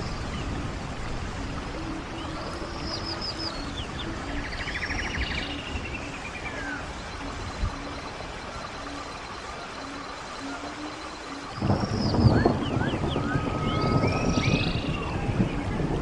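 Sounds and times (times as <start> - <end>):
birds singing: 0.0 - 0.7, 1.7 - 16.0
stream water rushing: 0.0 - 16.0.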